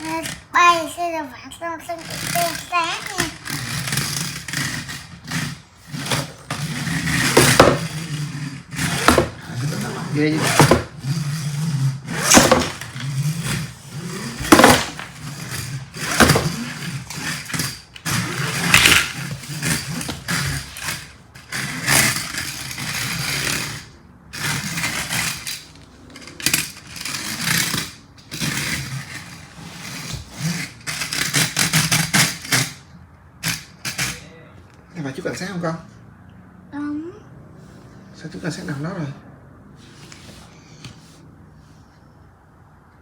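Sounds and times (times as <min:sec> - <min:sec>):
plastic toy car scraping and clattering: 0:00.0 - 0:01.2, 0:01.8 - 0:34.2.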